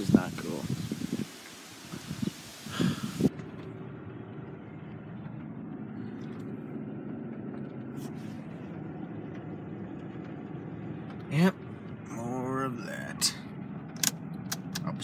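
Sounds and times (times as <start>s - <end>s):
outside hiss: 0.0s - 4.1s
car engine idling inside cabin: 3.3s - 15.0s.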